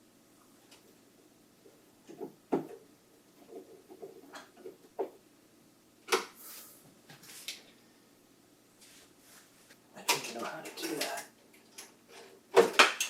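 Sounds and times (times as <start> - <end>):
rustling scrape: 8.8 - 9.8.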